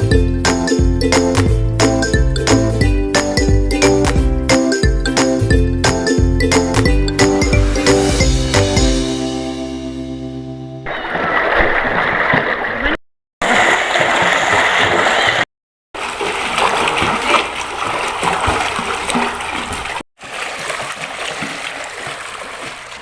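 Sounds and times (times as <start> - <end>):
water splashing and churning: 10.9 - 23.0.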